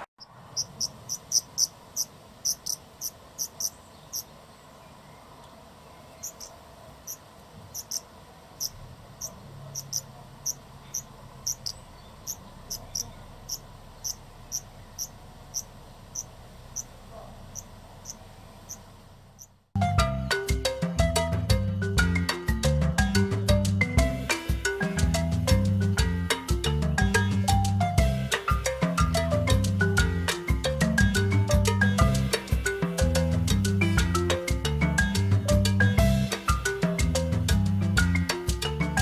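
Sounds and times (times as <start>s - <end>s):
cricket chirping: 0.5s - 4.3s, 6.2s - 16.9s.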